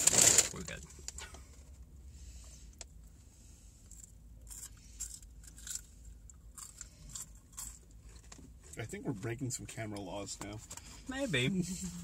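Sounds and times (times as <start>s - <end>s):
chewing crunchy fries: 3.8s - 8.8s.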